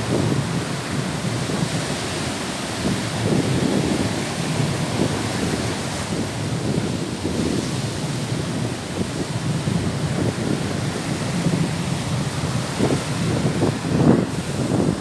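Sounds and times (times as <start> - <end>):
sea surf: 0.0 - 15.0
wind buffeting microphone: 0.0 - 15.0.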